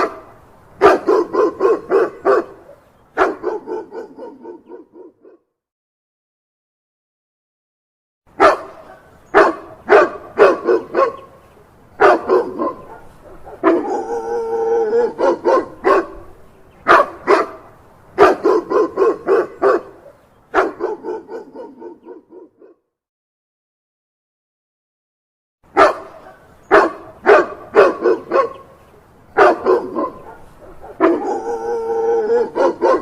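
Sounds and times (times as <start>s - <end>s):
dog barking: 0.0s - 5.5s, 8.4s - 11.4s, 12.0s - 22.8s, 25.7s - 28.7s, 29.4s - 33.0s
dog howling: 13.5s - 15.7s, 30.8s - 33.0s.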